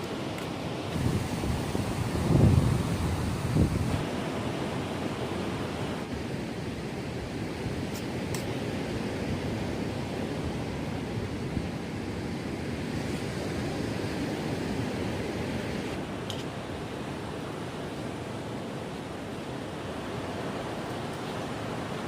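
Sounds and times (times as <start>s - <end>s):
sea waves on beach: 0.0s - 22.0s
strong wind: 0.0s - 22.0s.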